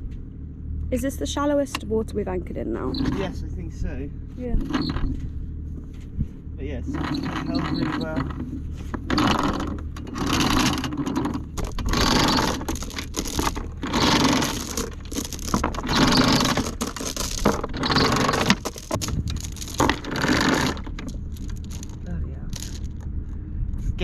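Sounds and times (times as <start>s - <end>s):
anchor chain rattling and scraping: 2.8s - 3.4s, 4.5s - 5.3s, 6.8s - 23.4s.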